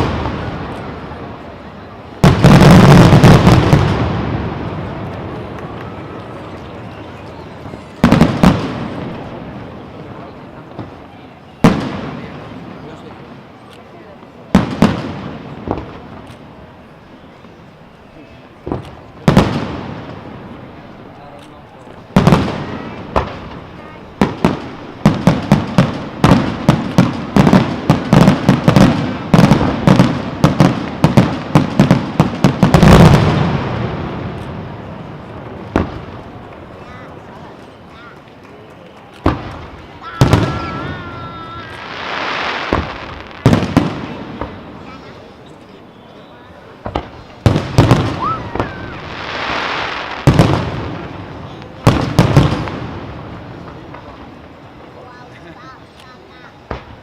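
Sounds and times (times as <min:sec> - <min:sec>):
fireworks rumble: 0:00.0 - 0:57.0
firework hiss: 0:39.2 - 0:45.6, 0:46.6 - 0:57.0
rising firework whistle: 0:48.0 - 0:50.2.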